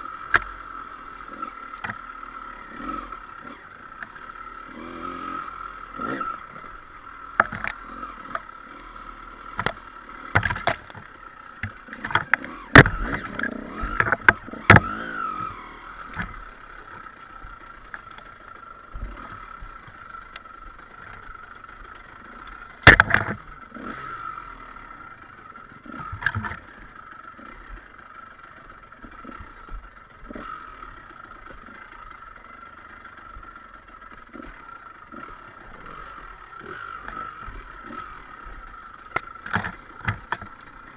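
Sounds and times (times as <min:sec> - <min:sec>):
motorcycle engine running: 0:00.0 - 0:40.9
sharp knocks and clatters: 0:07.3 - 0:08.5, 0:09.5 - 0:15.0, 0:22.8 - 0:23.5, 0:39.1 - 0:40.6.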